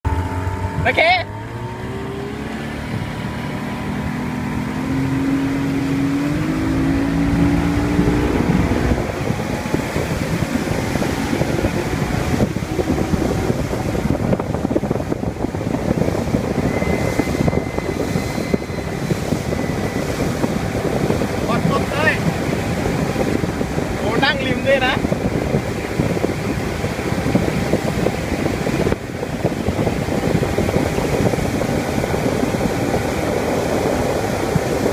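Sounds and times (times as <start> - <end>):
outboard motor accelerating: 0.0 - 34.9
rushing water and wind: 0.0 - 34.9.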